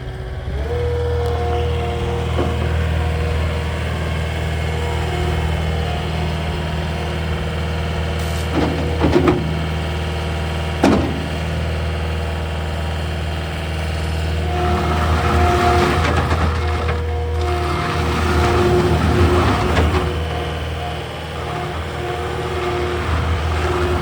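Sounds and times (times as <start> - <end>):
diesel engine running: 0.0 - 24.0
whine: 0.0 - 24.0
sharp knocks: 10.8 - 11.5.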